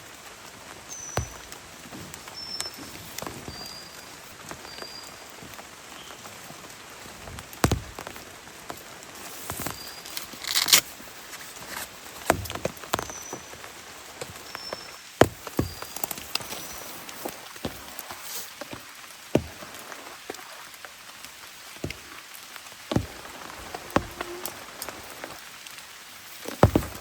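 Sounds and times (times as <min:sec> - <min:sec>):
steady rain: 0:00.0 - 0:27.0
heavy drops ticking on surface: 0:01.2 - 0:02.3, 0:07.3 - 0:08.4, 0:22.8 - 0:25.4, 0:26.5 - 0:27.0.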